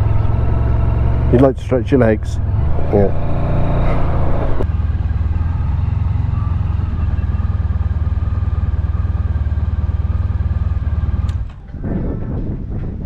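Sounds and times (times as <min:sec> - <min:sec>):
motorcycle engine idling: 0:04.1 - 0:11.7.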